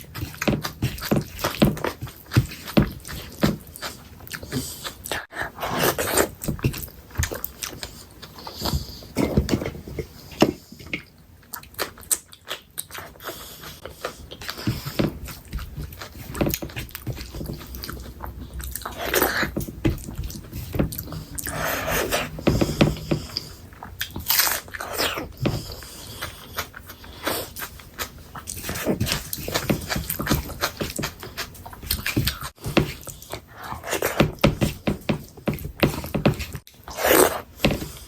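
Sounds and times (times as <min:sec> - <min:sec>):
wet chewing: 0:00.0 - 0:09.1, 0:10.6 - 0:34.4
biting and crunching: 0:10.9 - 0:34.5.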